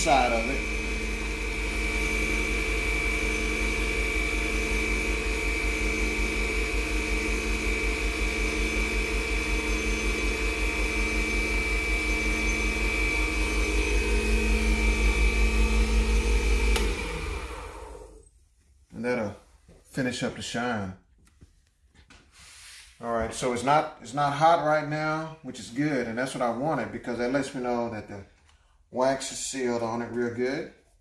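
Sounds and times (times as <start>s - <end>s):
wood lathe whining: 0.0s - 18.2s
lathe motor winding down: 0.0s - 18.3s.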